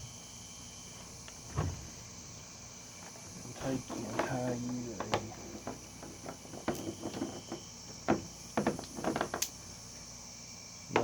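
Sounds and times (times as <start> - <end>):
crickets chirring: 0.0 - 11.0
cord being handled and knotted: 3.0 - 9.6.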